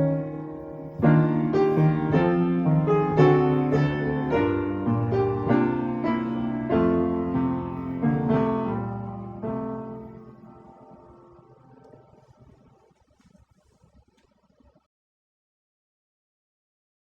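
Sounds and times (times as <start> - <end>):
slow piano chords: 0.0 - 13.2.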